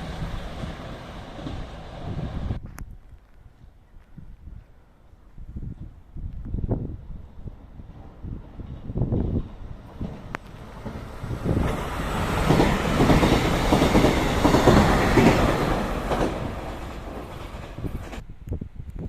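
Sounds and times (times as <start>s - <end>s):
train passing: 0.0s - 2.6s, 6.6s - 18.3s.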